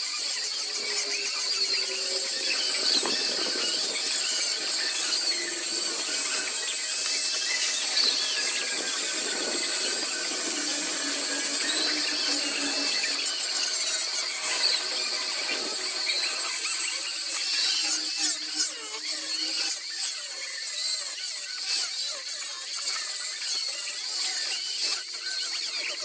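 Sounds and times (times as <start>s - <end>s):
rotary tool cutting wood: 0.0s - 18.7s.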